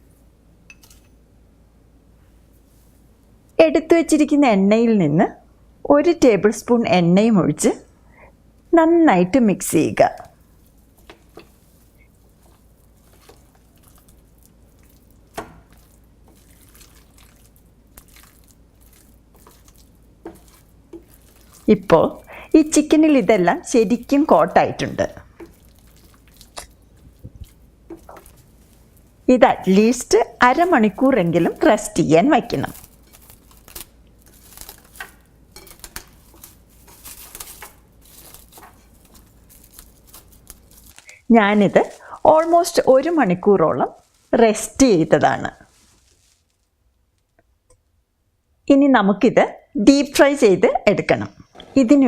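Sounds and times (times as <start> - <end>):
wet squishing of marinade: 10.3 - 44.4
short rustles: 45.6 - 46.8.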